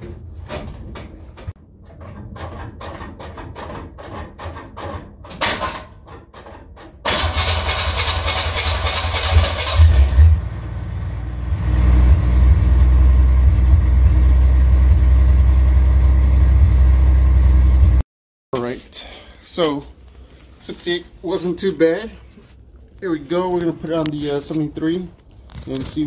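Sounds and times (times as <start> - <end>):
starter motor cranking: 6.4 - 10.3
car engine revving and idling: 7.3 - 18.0.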